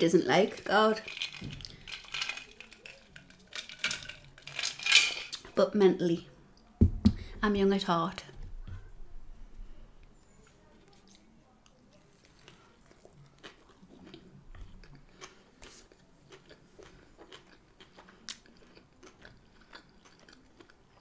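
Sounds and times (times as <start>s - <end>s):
chewing with soft crunches: 10.0s - 21.0s.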